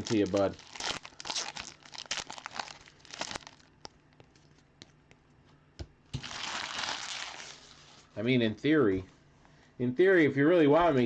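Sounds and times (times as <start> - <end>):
packaging crinkles and clicks: 0.0 - 4.4, 6.2 - 7.7
plastic wrapping rustle: 0.0 - 4.5, 6.2 - 8.2.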